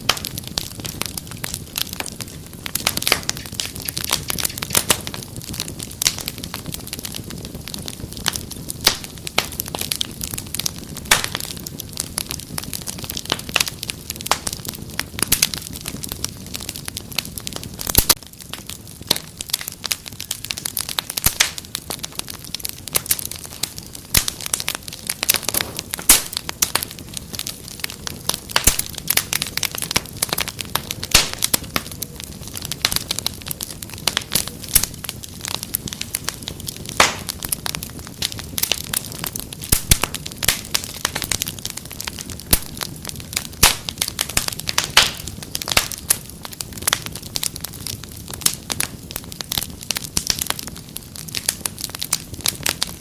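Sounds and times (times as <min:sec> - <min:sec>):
fire crackling and popping: 0:00.0 - 0:53.0
low rustle of flames: 0:00.0 - 0:53.0.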